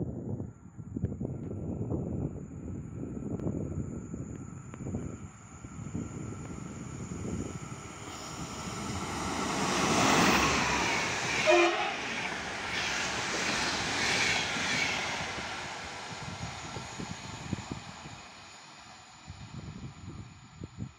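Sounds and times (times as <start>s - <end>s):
train rushing past: 5.6s - 20.2s
train horn blast: 11.3s - 12.3s.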